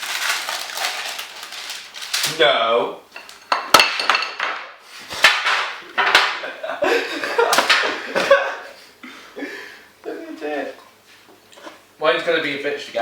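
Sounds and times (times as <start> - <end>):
dishes clattering: 3.2 - 6.5.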